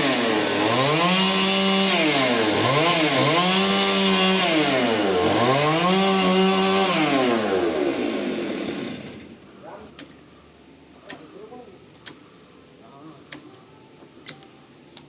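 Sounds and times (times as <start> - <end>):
chainsaw cutting log: 0.0 - 9.4.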